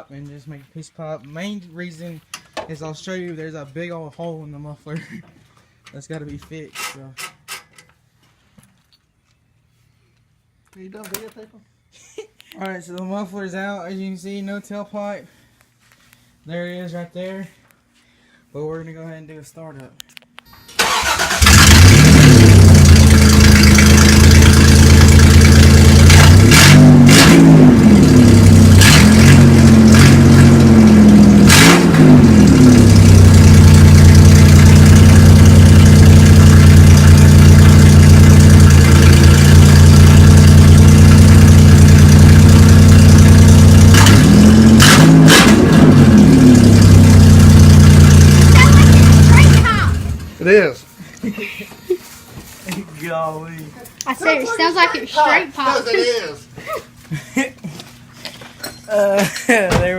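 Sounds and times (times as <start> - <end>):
loud engine starting and revving: 20.8 - 50.3.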